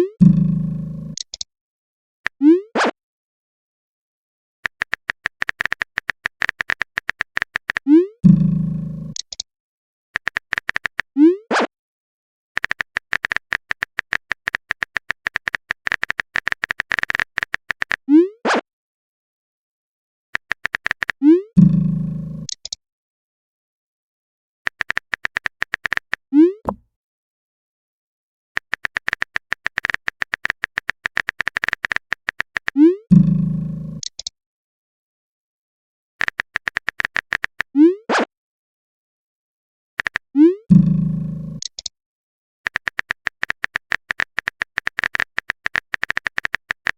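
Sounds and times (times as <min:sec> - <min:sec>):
phone keyboard typing clicks: 0:04.6 - 0:07.8, 0:10.2 - 0:11.0, 0:12.6 - 0:18.0, 0:20.4 - 0:21.2, 0:24.7 - 0:26.9, 0:28.6 - 0:32.8, 0:36.2 - 0:37.7, 0:40.0 - 0:40.3, 0:41.6 - 0:41.9, 0:42.7 - 0:46.9.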